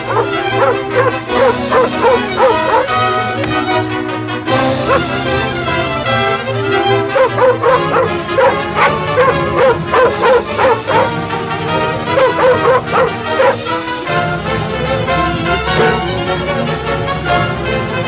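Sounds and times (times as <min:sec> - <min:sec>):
dog yipping and whimpering: 0:00.0 - 0:03.2, 0:04.8 - 0:05.1, 0:07.2 - 0:11.2, 0:12.1 - 0:13.7
orchestral film music: 0:00.0 - 0:18.0.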